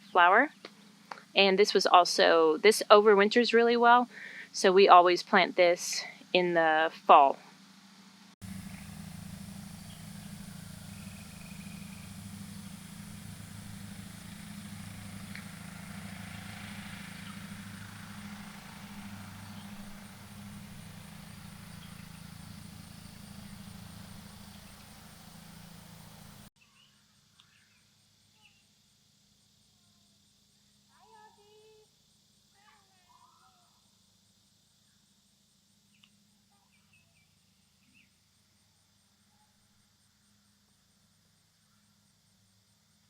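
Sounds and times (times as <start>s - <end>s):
engine running steadily: 8.4s - 26.5s
faint chirps: 8.4s - 28.8s.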